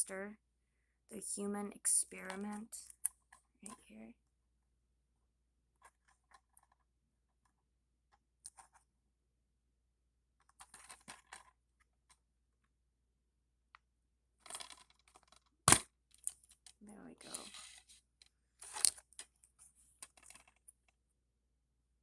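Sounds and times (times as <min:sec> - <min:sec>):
plastic case clicking and rustling: 0:10.4 - 0:11.5, 0:14.4 - 0:17.9, 0:18.6 - 0:19.4, 0:20.0 - 0:20.9.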